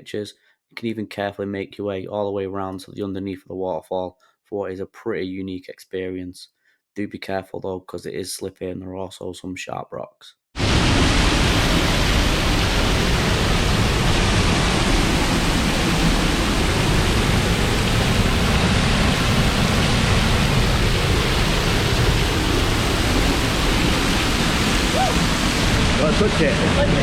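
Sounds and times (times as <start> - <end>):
waterfall roaring: 10.6 - 27.0.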